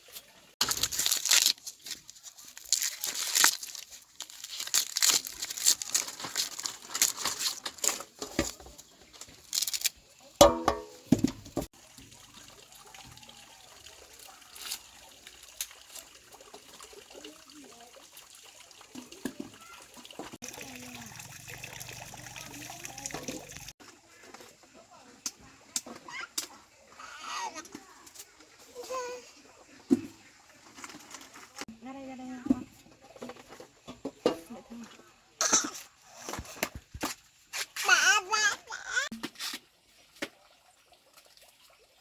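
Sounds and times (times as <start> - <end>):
crinkling and rustling: 0.1 - 10.1.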